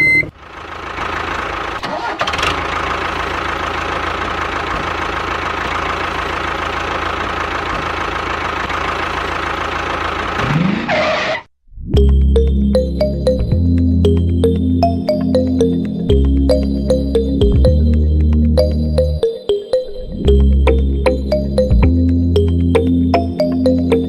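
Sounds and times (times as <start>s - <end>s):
music: 12.0s - 24.0s.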